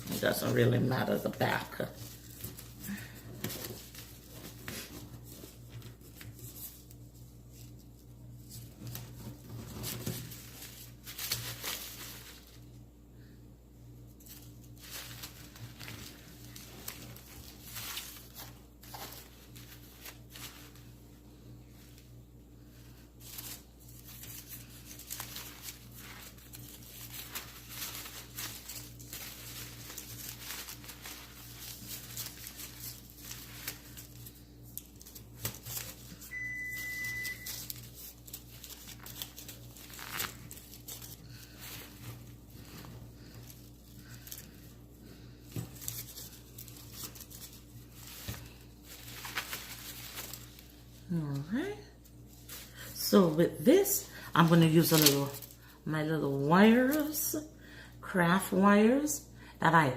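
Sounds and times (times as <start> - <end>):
artificial flowers rustling: 0.0 - 57.4
short high beep: 36.3 - 37.5.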